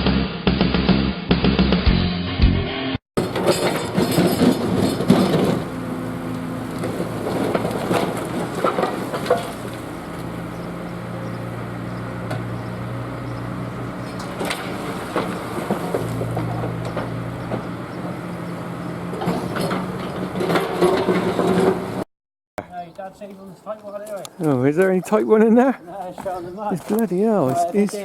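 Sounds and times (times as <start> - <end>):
concrete crunching and cracking: 3.2 - 13.0
diesel engine running: 3.2 - 22.1.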